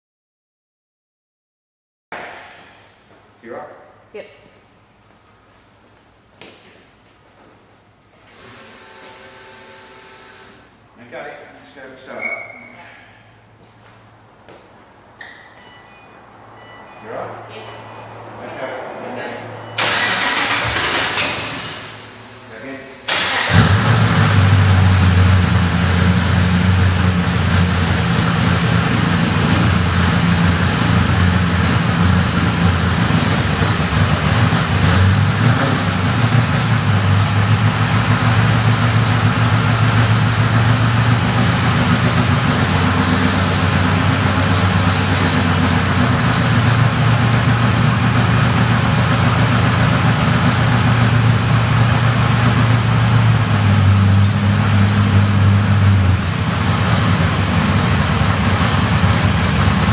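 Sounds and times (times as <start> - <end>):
car engine at fast idle: 19.8 - 59.9.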